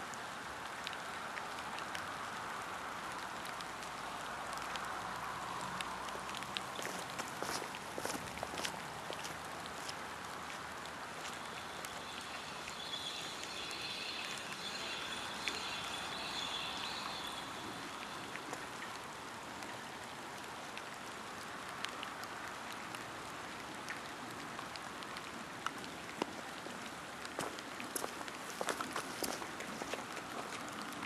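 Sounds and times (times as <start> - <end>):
light rain hissing: 0.0 - 31.0
drips ticking: 5.8 - 19.2
faint high steady tones: 11.2 - 18.9.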